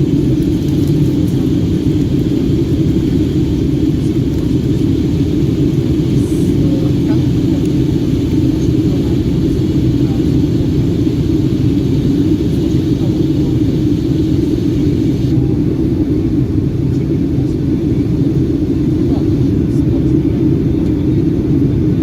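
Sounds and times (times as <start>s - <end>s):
jet engine cabin rumble: 0.0s - 22.0s.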